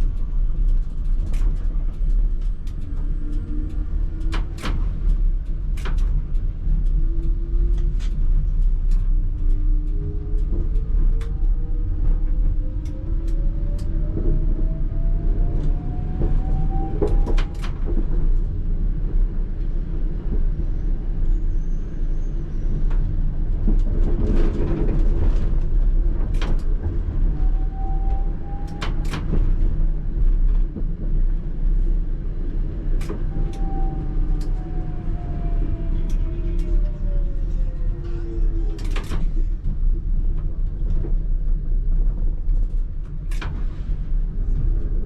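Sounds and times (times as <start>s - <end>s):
tram motor whine: 0.0s - 41.1s
low rumble and hum: 0.0s - 45.0s.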